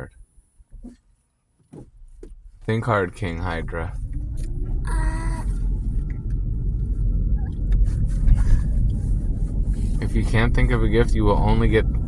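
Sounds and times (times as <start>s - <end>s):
car road noise rumble: 0.0s - 1.1s, 1.7s - 12.0s.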